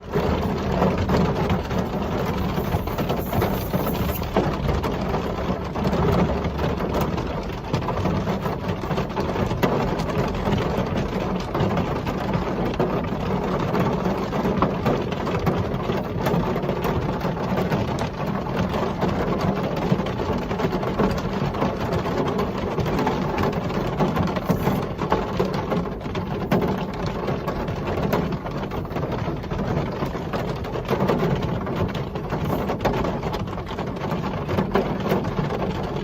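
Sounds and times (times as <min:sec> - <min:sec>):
rain falling: 0:00.0 - 0:11.7.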